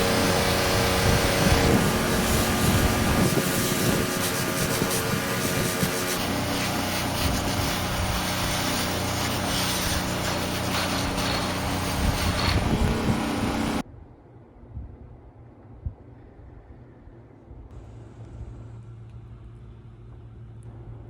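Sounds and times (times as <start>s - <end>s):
motorized tool hissing and humming: 0.0s - 13.8s.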